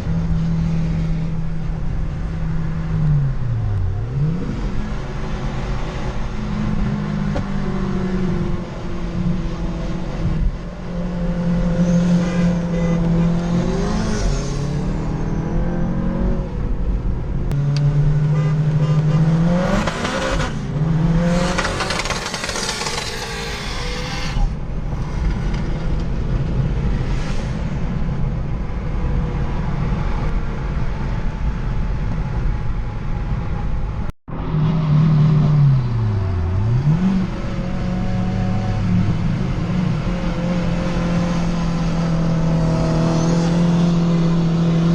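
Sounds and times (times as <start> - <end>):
wind and road noise: 0.0 - 44.9.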